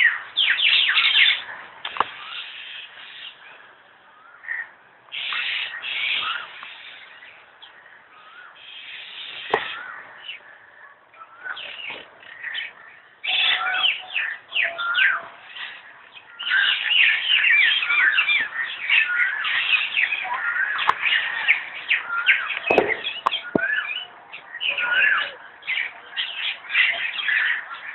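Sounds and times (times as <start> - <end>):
many birds chirping: 0.0 - 27.9
sharp knocks: 22.7 - 23.7.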